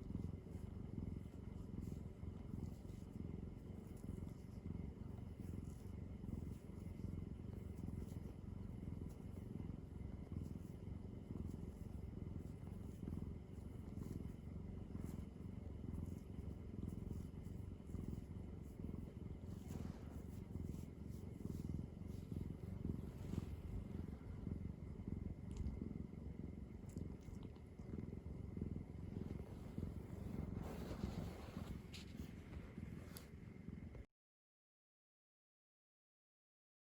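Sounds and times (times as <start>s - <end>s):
cat purring: 0.0s - 34.1s
faint small clicks: 25.5s - 25.8s.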